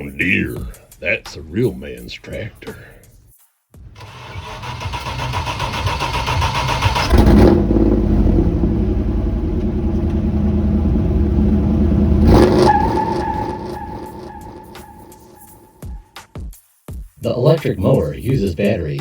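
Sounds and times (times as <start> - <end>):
car engine revving hard: 4.0 - 15.6.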